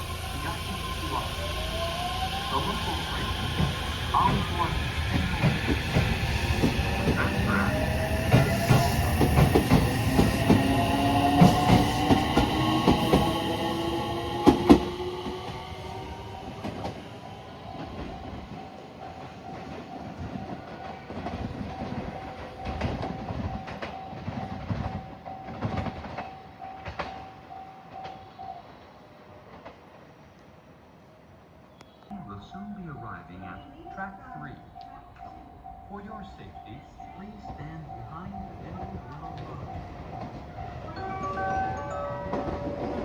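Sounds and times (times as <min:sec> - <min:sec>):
electric train motor whine: 0:00.0 - 0:17.2
train wheels clicking over rail joints: 0:02.5 - 0:17.0, 0:17.7 - 0:28.2.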